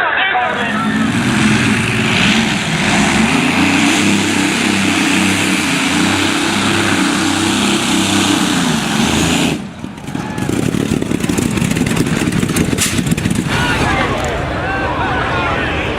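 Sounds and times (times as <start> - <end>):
engine running hard under load: 0.4 - 15.9.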